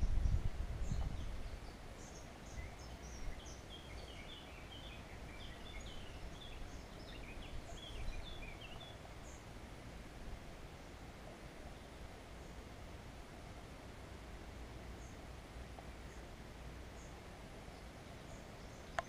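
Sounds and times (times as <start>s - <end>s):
birds chirping: 0.0s - 9.6s, 14.8s - 19.0s
steady outdoor hiss: 0.0s - 19.0s.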